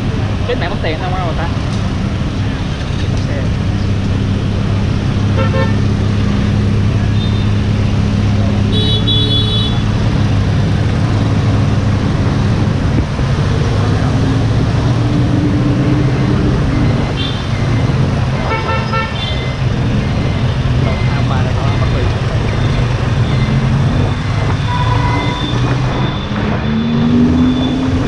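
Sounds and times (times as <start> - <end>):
traffic engine drone: 0.0 - 28.0
vehicle horn honks: 5.4 - 5.8, 8.7 - 9.9, 18.5 - 19.4, 24.6 - 25.6.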